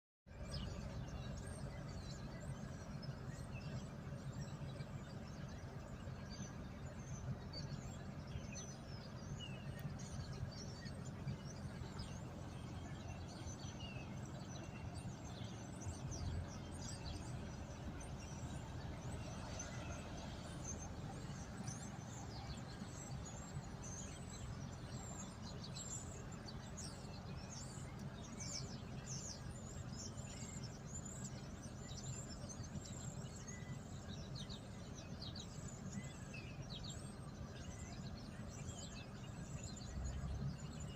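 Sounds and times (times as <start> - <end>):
low background rumble: 0.3 - 40.9
small birds chirping: 0.3 - 40.9.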